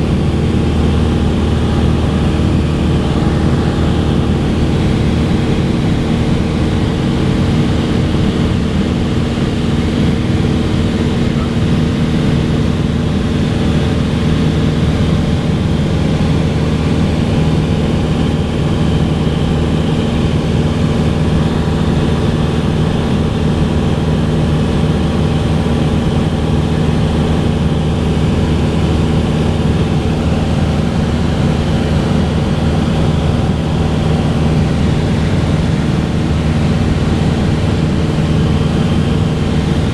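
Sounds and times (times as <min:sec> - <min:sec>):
propeller aircraft engine drone: 0:00.0 - 0:39.9.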